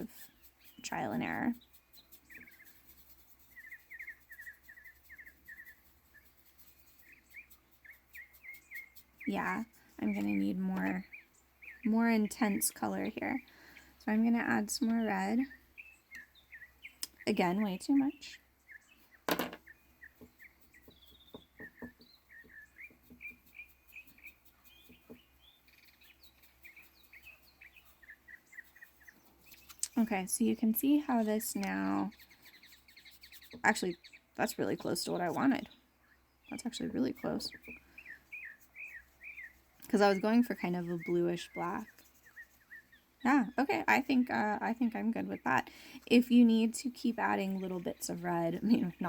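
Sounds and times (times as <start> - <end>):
songbirds chirping: 0.0 - 49.0.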